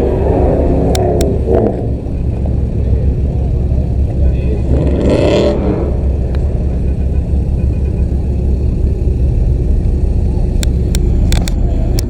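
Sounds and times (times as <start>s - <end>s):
car engine and road rumble: 0.0s - 12.0s
sharp clicks: 10.5s - 12.0s.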